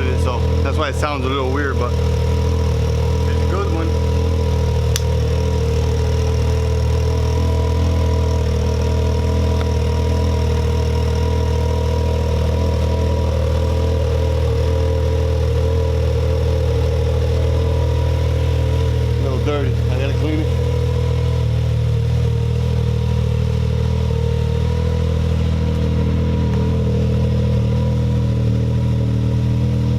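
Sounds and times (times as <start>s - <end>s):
engine idling: 0.0s - 29.9s
sharp click: 4.9s - 5.1s.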